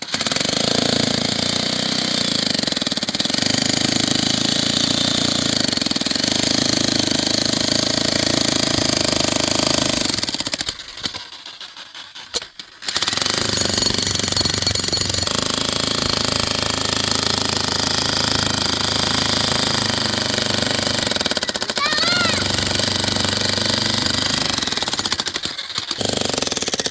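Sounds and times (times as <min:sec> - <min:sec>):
motor running loudly: 0:21.8 - 0:25.0.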